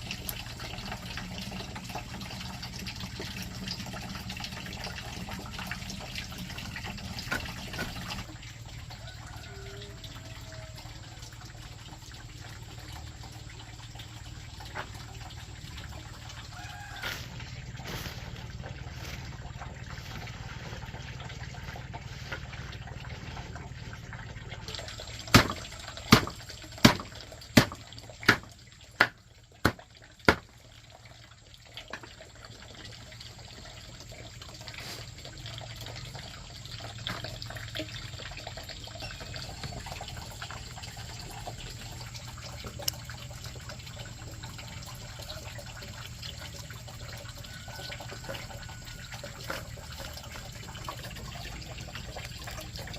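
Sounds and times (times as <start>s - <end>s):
running water: 0.0s - 52.9s
sharp knocks: 25.3s - 30.5s.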